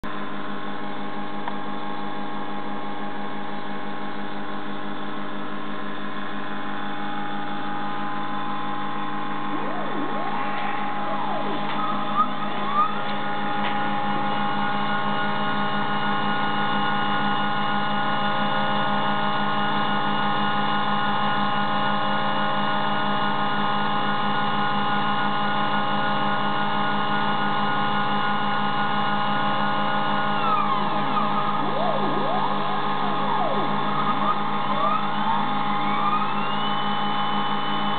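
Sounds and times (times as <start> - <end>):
steady motor hum: 0.0 - 37.9
stepper motors whining: 6.2 - 19.0, 27.1 - 37.9
grinding wheel grinding metal: 29.8 - 37.5.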